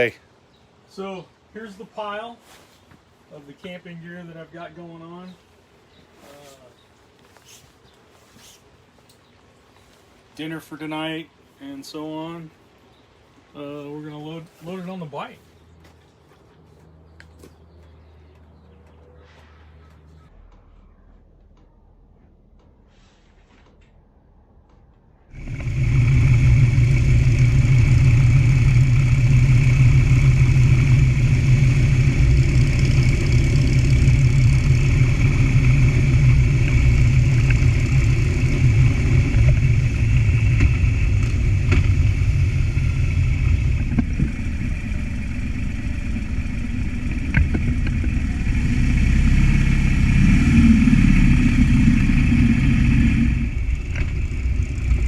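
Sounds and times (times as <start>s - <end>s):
motorcycle engine running: 25.3s - 55.0s.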